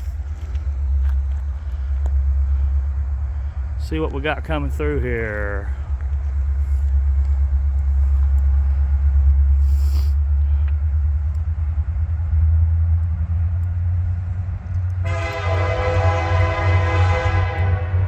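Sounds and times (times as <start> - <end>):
diesel locomotive rumble: 0.0 - 18.0
train air horn chord: 15.0 - 18.0.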